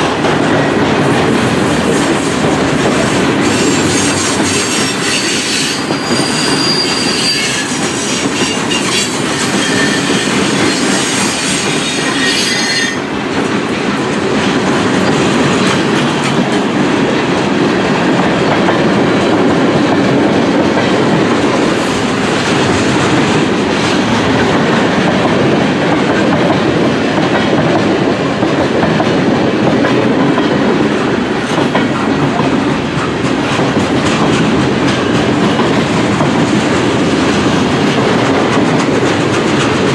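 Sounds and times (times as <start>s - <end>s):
freight cars rolling on rails: 0.0s - 39.9s
high wheel squeal: 3.4s - 13.1s.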